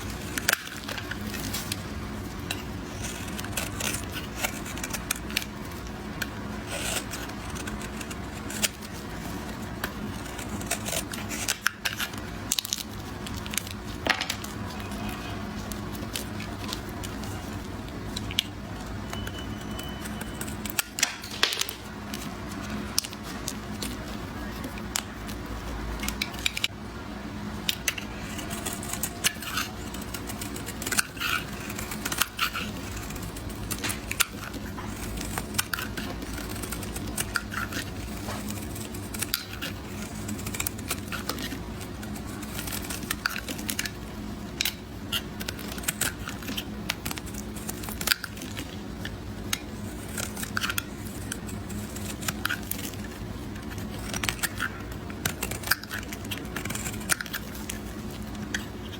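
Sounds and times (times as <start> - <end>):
knife cutting soap: 0.0 - 26.8, 27.6 - 58.9.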